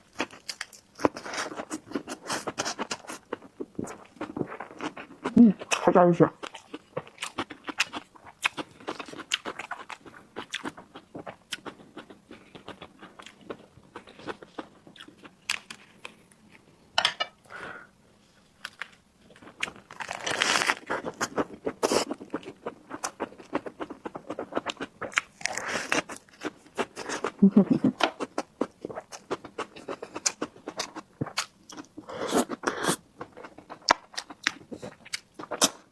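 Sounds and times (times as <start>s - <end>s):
person chewing and biting: 6.4s - 16.2s, 18.7s - 35.8s.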